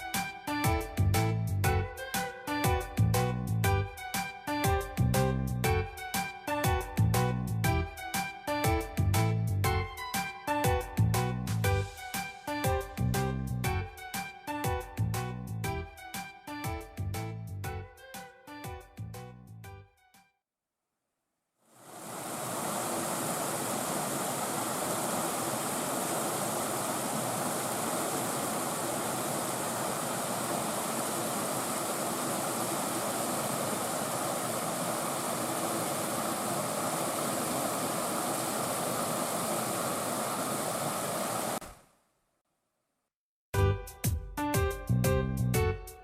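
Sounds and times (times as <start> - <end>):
water rushing over rock cascades: 21.8 - 41.6.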